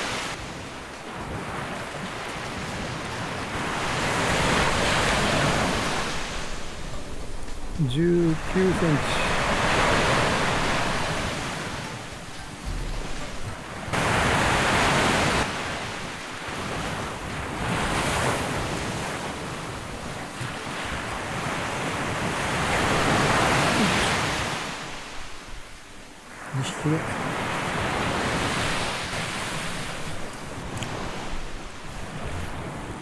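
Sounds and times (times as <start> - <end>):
wind buffeting microphone: 0.0 - 26.1
surf breaking on beach: 0.0 - 33.0.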